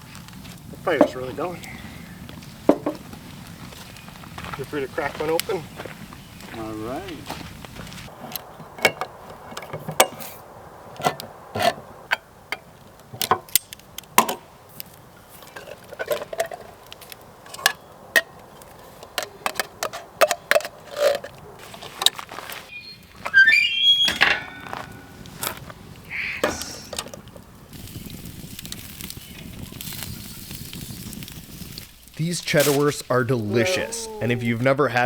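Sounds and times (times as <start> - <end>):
wood fire crackling: 0.0 - 20.2, 24.0 - 35.0
high whistling sound: 22.7 - 25.2.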